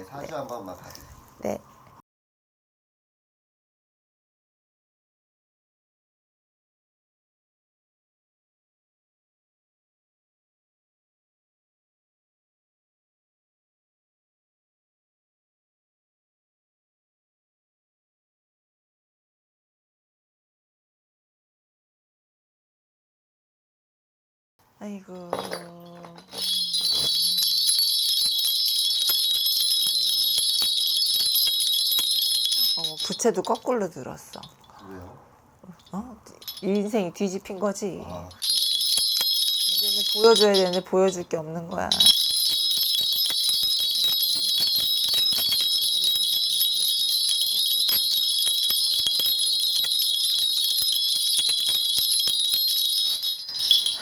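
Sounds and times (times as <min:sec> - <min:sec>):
bell rattle jingling: 0:25.3 - 0:34.7, 0:35.8 - 0:54.0.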